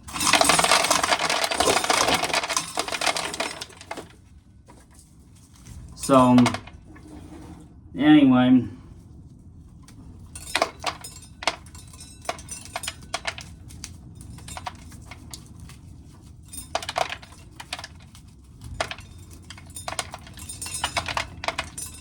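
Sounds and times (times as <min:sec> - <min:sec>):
corn kernels clicking and rattling: 0:00.0 - 0:04.2, 0:10.4 - 0:22.0.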